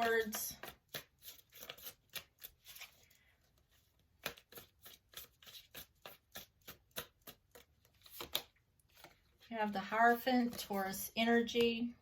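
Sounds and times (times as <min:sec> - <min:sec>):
cards being shuffled: 0:00.0 - 0:09.5.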